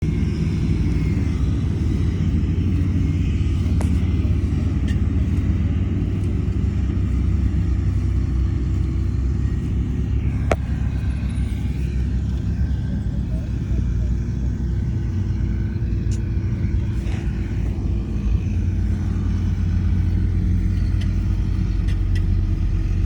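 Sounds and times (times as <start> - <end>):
diesel engine rumble: 0.0 - 23.0.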